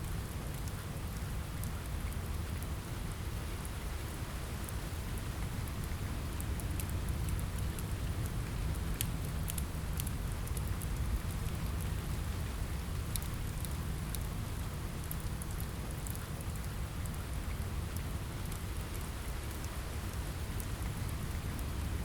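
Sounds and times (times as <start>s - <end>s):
rain on a window: 0.0s - 22.0s
wood fire crackling: 4.7s - 22.0s.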